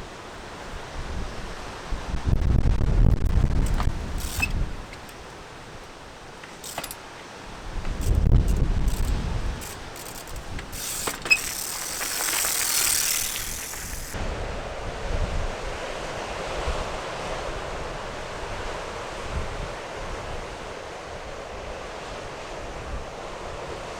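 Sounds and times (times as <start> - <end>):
clicks: 3.5 - 7.1, 7.7 - 14.2.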